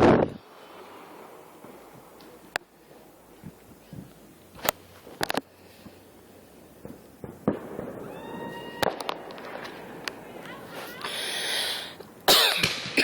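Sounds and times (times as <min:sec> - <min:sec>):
fireworks bangs: 0:00.0 - 0:06.0, 0:06.7 - 0:13.0
firework whistling: 0:07.0 - 0:13.0.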